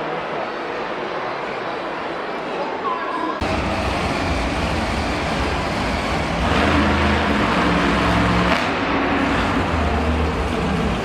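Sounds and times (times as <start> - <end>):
reverberant arena noise: 0.0 - 11.0
monster truck engine revving: 3.4 - 11.0.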